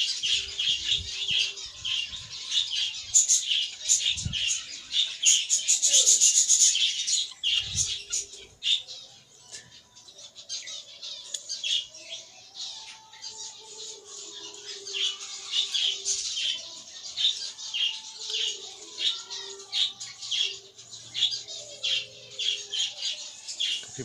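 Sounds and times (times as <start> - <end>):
budgerigars chirping: 0.0 - 9.0.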